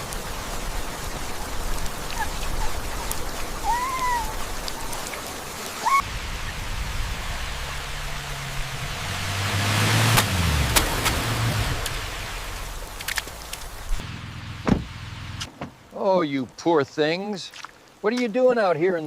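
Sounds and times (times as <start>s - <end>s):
steady rain: 0.0s - 19.0s
puppies whimpering: 1.8s - 5.1s
puppy yelping: 2.0s - 5.0s
low steady rumble: 6.0s - 15.5s.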